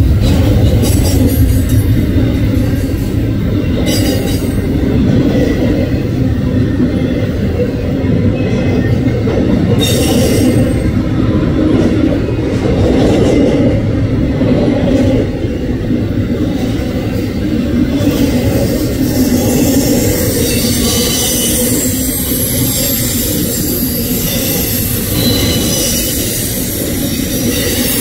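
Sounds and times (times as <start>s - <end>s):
train wheels rumbling on rail: 0.0s - 28.0s
high-pitched wheel squeals: 18.8s - 28.0s.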